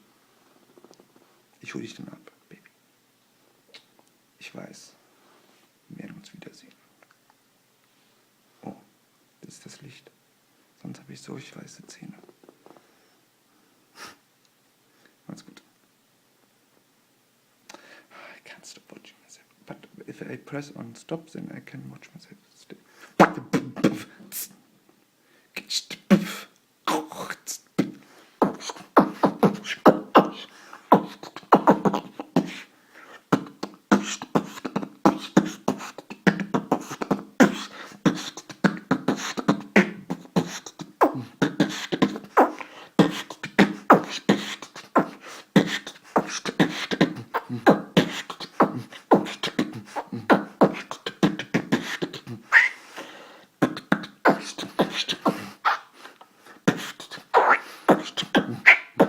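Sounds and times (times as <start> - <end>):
beatboxing: 23.2 - 24.6, 25.6 - 59.0.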